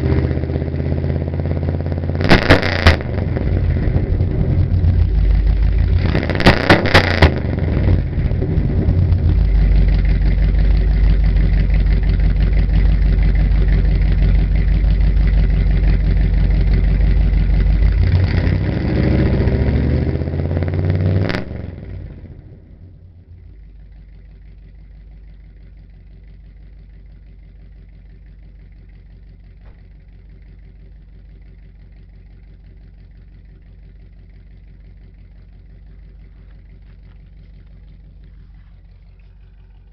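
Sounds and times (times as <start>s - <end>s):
loud engine revving: 0.0s - 10.0s, 17.8s - 22.4s
exhaust pops: 1.0s - 19.8s, 21.2s - 39.9s
low steady hum: 2.9s - 19.8s, 21.6s - 39.9s.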